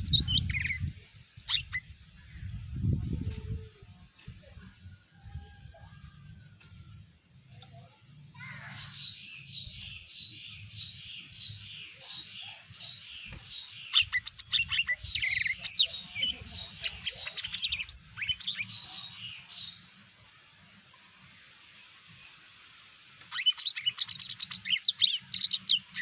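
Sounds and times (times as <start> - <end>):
bird singing: 0.0 - 2.6, 7.4 - 19.9, 23.2 - 26.0.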